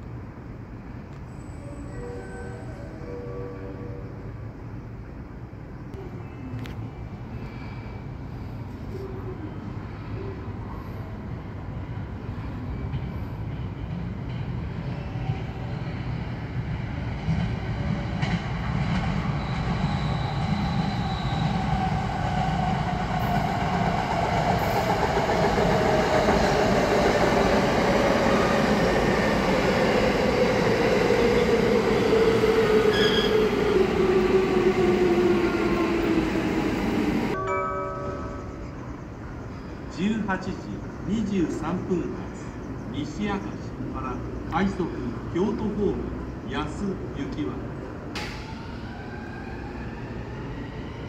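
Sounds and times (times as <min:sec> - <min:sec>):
train braking: 0:01.2 - 0:04.5, 0:14.6 - 0:43.7
train wheels rumbling: 0:12.1 - 0:37.4.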